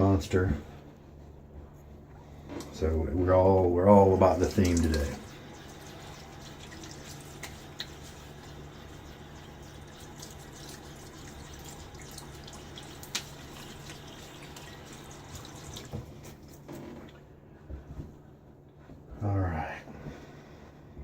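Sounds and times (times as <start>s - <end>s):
tap water running into sink: 4.0s - 16.6s.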